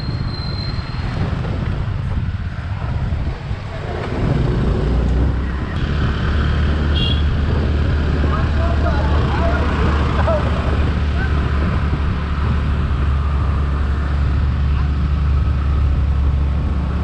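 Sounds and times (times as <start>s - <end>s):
wind buffeting microphone: 0.0s - 17.0s
motorcycle engine running: 4.0s - 13.6s.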